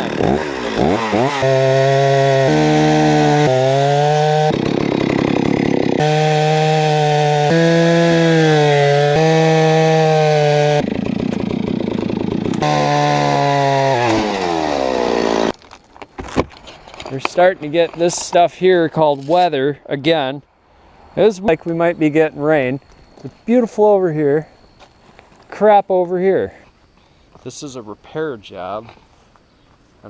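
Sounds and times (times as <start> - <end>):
chainsaw cutting wood: 0.0 - 15.6
chainsaw running: 0.0 - 15.6.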